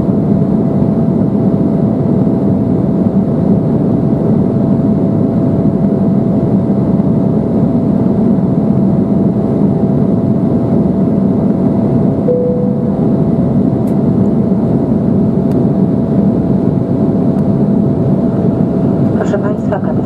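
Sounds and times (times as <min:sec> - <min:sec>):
jet cabin engine roar: 0:00.0 - 0:20.0
short tone: 0:12.3 - 0:13.5
thin steady whine: 0:12.3 - 0:14.4.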